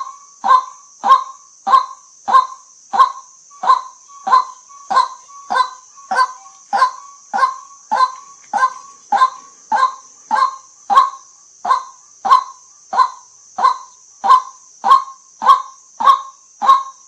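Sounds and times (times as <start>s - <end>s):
bird honking call: 3.6s - 13.8s.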